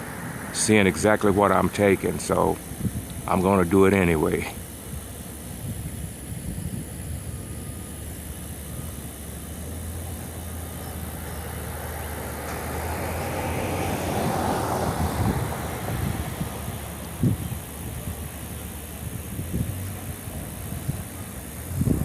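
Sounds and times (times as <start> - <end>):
vehicle driving past: 0.0 - 2.3, 9.6 - 19.0.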